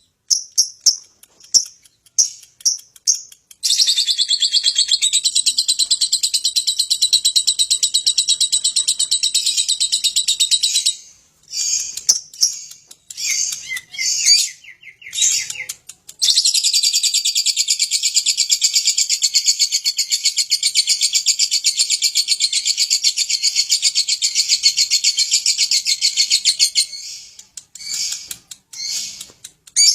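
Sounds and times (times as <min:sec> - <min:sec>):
lovebird chattering trills: 0:23.1 - 0:29.9.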